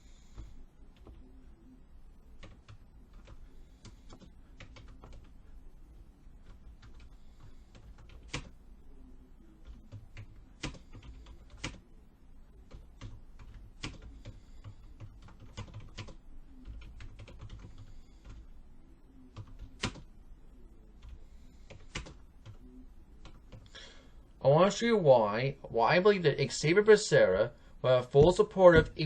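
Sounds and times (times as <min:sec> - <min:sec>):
computer keyboard typing: 0:02.4 - 0:05.3, 0:06.4 - 0:08.6, 0:09.6 - 0:11.8, 0:12.7 - 0:18.5, 0:19.3 - 0:20.1, 0:21.0 - 0:22.6.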